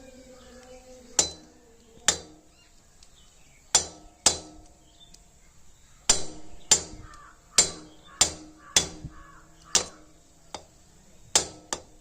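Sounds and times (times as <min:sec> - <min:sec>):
hammer tapping metal punch: 0:01.2 - 0:01.5, 0:03.7 - 0:04.8, 0:09.7 - 0:12.0.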